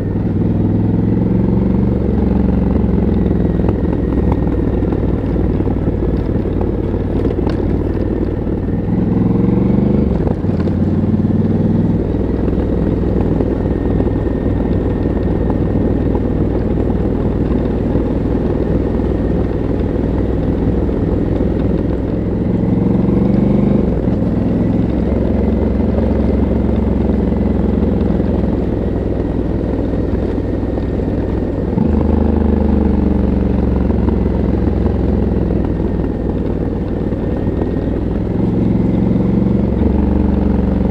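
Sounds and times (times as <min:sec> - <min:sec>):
motorcycle engine accelerating: 0:00.0 - 0:40.9
wind noise: 0:02.0 - 0:23.0.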